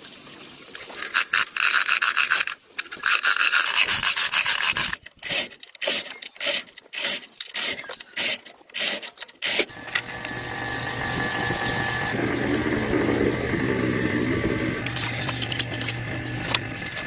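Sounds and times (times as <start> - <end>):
hand tool rasping: 1.1 - 10.4, 14.4 - 17.0
motor humming with high whine: 9.7 - 17.0.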